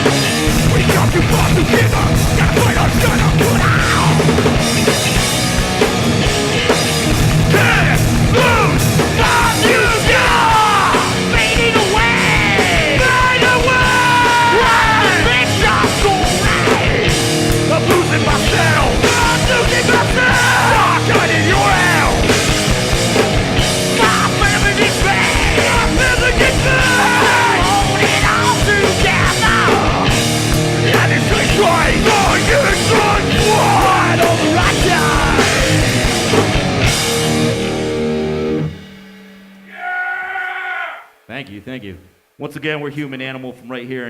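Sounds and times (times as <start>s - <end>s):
punk band playing live: 0.0s - 39.1s
person yelling vocals: 7.5s - 17.0s, 17.7s - 22.2s, 24.0s - 30.1s, 30.9s - 35.6s, 39.7s - 41.2s.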